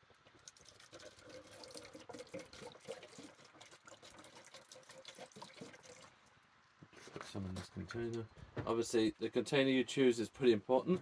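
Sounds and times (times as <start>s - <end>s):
liquid pouring trickle: 0.0s - 6.4s.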